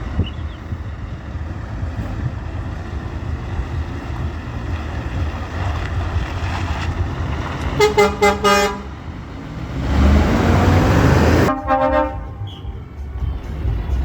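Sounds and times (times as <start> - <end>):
wind buffeting microphone: 0.0 - 11.5
truck engines idling: 0.0 - 14.0
truck horn blast: 7.7 - 9.0, 10.4 - 12.9.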